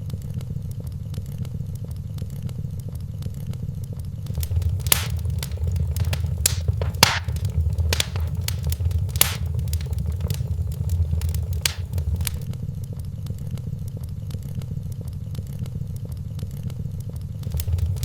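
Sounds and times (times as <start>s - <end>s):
loud fire pops: 4.3s - 12.4s, 17.4s - 18.0s
low rumble of burning fire: 4.3s - 12.5s, 17.4s - 18.0s
wood fire crackling: 4.3s - 12.5s, 17.4s - 18.0s.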